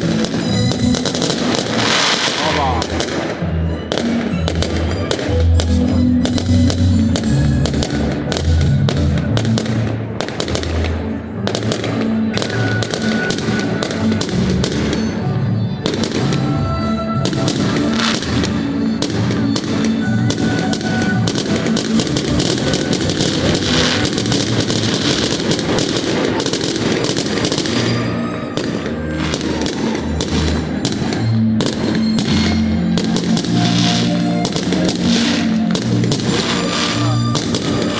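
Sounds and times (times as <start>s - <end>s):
fireworks bangs: 0.0s - 37.9s
music playing: 0.0s - 37.9s.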